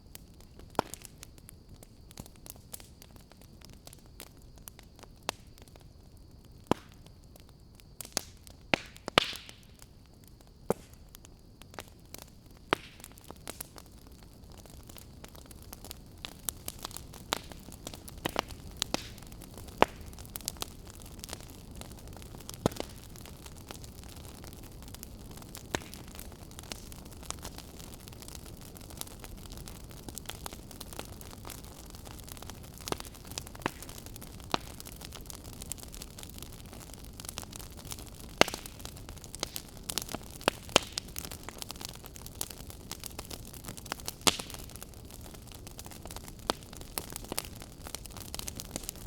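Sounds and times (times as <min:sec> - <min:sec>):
wood fire crackling and popping: 0:00.0 - 0:49.0.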